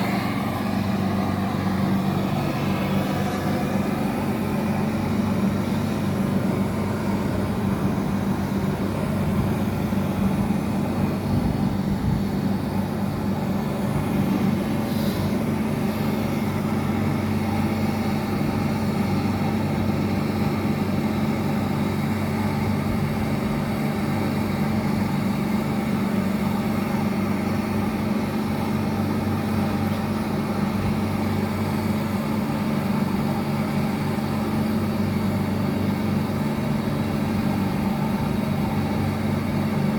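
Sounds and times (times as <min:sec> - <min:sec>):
air conditioning hum: 0:00.0 - 0:39.9
brief hiss: 0:14.9 - 0:15.3.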